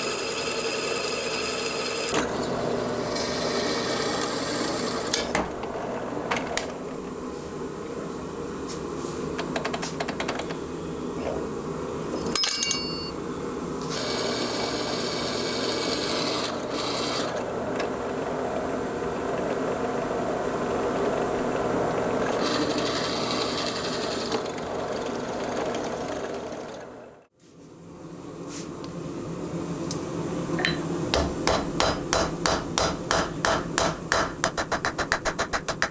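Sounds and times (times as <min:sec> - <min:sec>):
power tool motor running: 0:00.0 - 0:06.1, 0:13.8 - 0:27.1.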